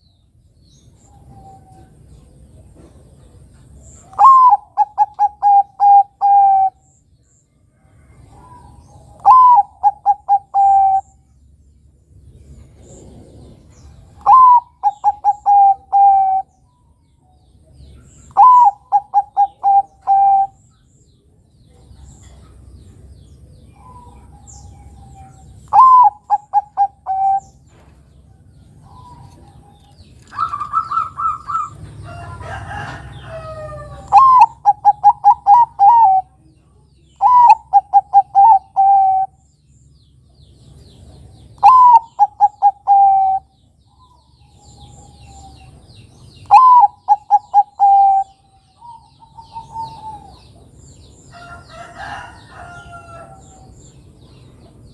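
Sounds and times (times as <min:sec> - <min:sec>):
dove cooing: 0:04.0 - 0:06.8, 0:08.2 - 0:11.2, 0:12.8 - 0:16.5, 0:18.3 - 0:20.6, 0:23.8 - 0:27.6, 0:28.8 - 0:36.4, 0:37.2 - 0:39.4, 0:41.6 - 0:45.8, 0:46.4 - 0:50.7.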